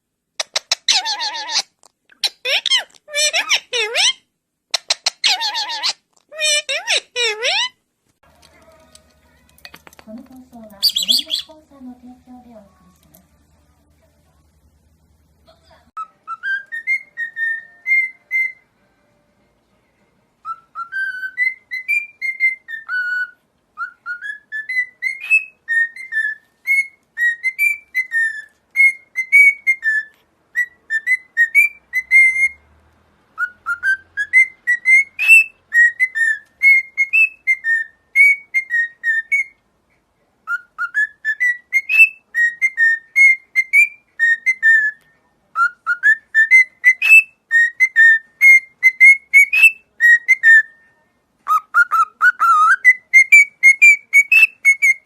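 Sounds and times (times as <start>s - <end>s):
cockatiel whistling a tune: 10.8s - 11.5s, 16.0s - 18.7s, 20.4s - 32.7s, 33.4s - 39.6s, 40.4s - 55.0s.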